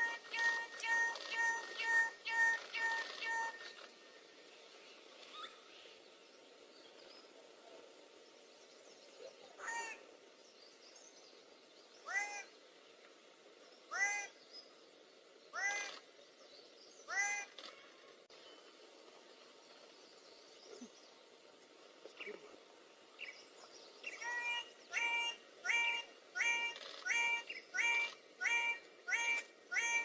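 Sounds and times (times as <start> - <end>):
bird calling ringing notes: 0.0 - 3.9, 24.0 - 30.0
faint background hiss: 0.0 - 30.0.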